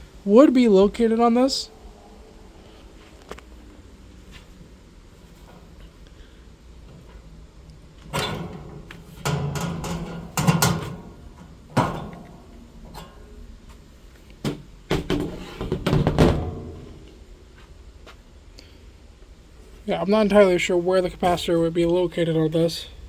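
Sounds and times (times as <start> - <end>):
handling knocks and clunks: 8.0 - 17.3.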